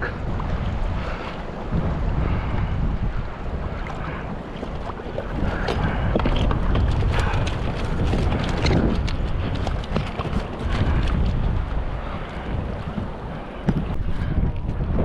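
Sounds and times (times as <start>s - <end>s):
wind buffeting microphone: 0.0s - 15.0s
gear clicking and knocking: 5.6s - 11.5s.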